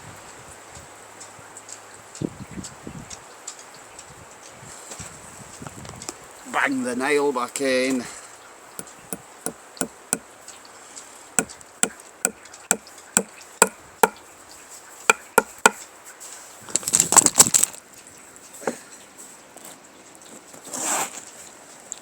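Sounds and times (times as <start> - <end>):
hammer tapping a nail: 11.4 - 14.2, 15.1 - 15.8.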